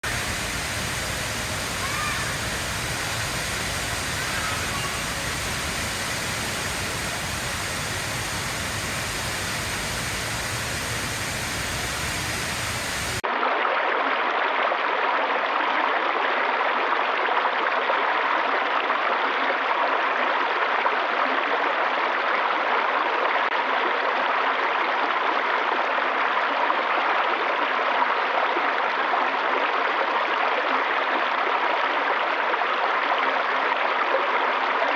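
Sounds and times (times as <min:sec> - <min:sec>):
running water rushing: 0:00.0 - 0:13.2.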